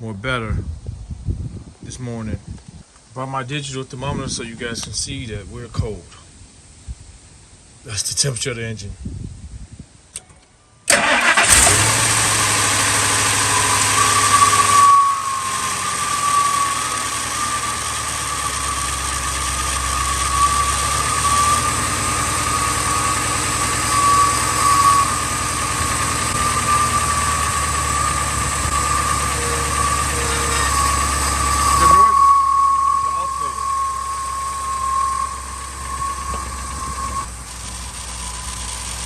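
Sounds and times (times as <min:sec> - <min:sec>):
engine starting and idling: 0:10.9 - 0:39.0
wavering whine: 0:11.1 - 0:39.0.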